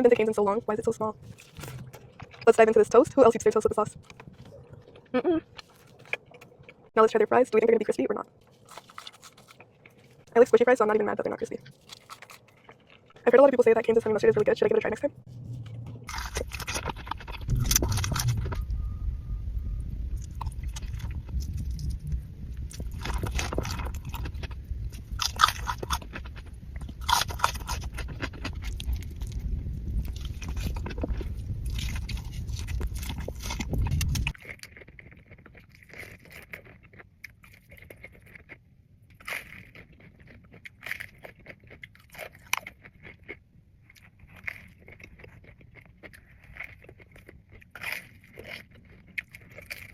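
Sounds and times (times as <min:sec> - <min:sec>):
crunchy chewing: 0:00.0 - 0:07.0, 0:08.2 - 0:10.3, 0:11.0 - 0:14.4, 0:15.3 - 0:18.9, 0:20.1 - 0:49.9
low rumble: 0:13.2 - 0:34.3.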